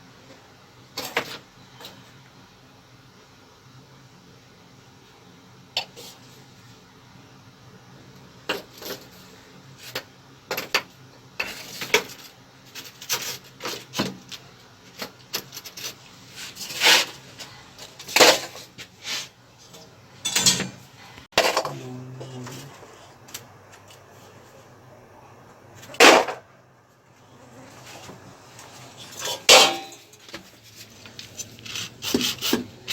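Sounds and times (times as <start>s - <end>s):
metal tools clinking and knocking: 20.2s - 20.8s, 29.1s - 30.2s
metal scraping: 28.9s - 30.2s.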